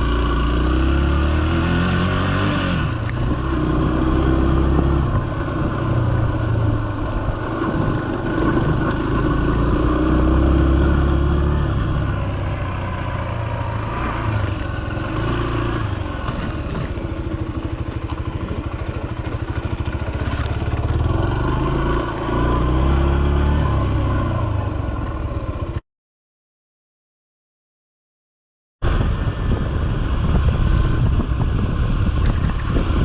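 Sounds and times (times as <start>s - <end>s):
motorcycle engine running: 0.0s - 25.8s, 28.8s - 33.0s
wind on microphone: 28.8s - 33.0s.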